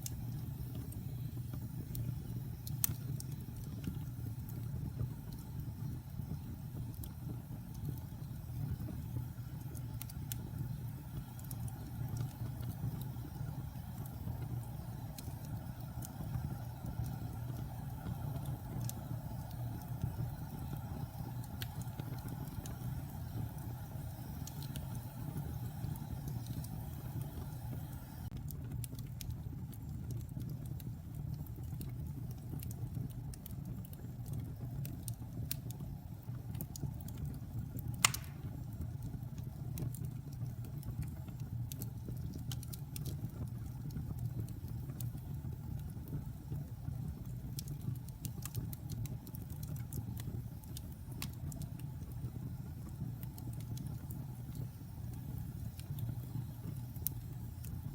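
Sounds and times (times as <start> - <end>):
fire crackling: 0.0 - 57.9
wood fire rumbling: 0.0 - 57.9
loud pop from fire: 38.0 - 38.6.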